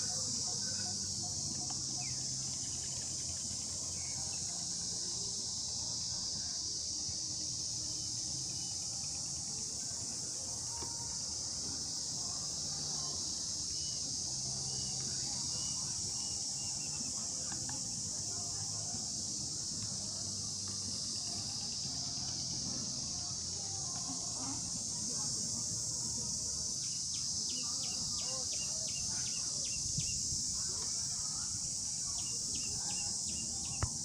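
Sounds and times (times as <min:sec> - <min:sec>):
faint chirps: 0:00.0 - 0:25.0
insects buzzing: 0:00.0 - 0:34.0.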